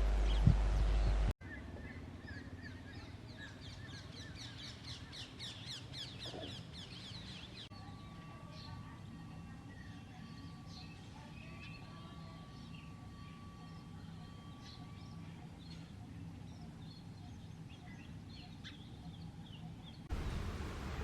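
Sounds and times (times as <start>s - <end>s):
low outdoor rumble: 0.0s - 4.8s, 19.9s - 21.0s
birds chirping and calling: 0.2s - 8.0s, 14.5s - 21.0s.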